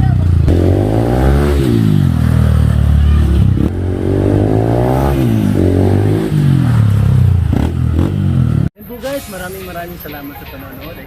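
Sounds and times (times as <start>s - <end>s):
motorcycle engine revving: 0.0s - 8.7s.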